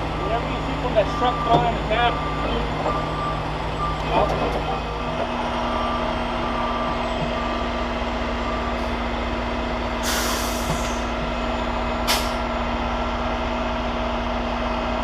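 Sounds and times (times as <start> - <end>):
truck diesel engine idling: 0.0 - 15.0
faint reversing beeps: 0.1 - 7.8, 8.4 - 9.0
air brake hiss: 10.0 - 11.1, 12.1 - 12.4.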